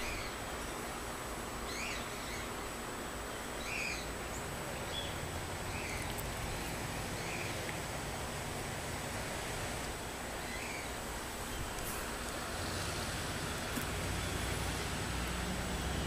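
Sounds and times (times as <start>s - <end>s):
bird chirping: 0.0s - 0.8s, 1.6s - 2.5s, 3.6s - 7.6s, 10.4s - 16.0s
outdoor background hiss: 0.0s - 16.0s.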